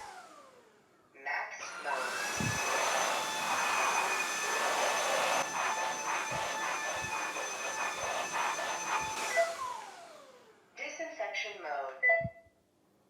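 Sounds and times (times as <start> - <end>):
floor cleaner suction motor whining: 0.0 - 0.8, 1.6 - 10.7
rushing air: 2.0 - 9.4.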